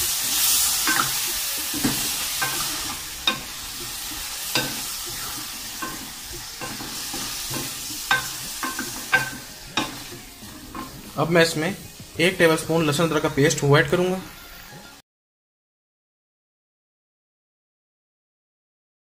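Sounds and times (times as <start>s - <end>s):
chicken sizzling in hot oil: 0.0s - 15.0s
wooden spoon knocking and scraping pan: 0.1s - 11.2s.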